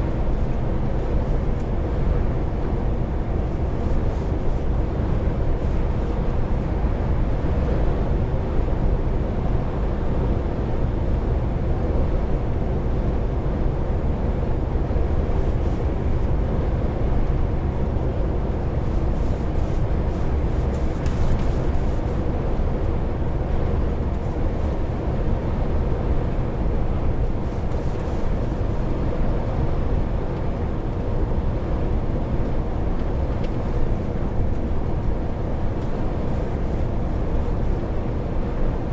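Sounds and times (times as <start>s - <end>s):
road and tyre noise: 0.0s - 38.9s.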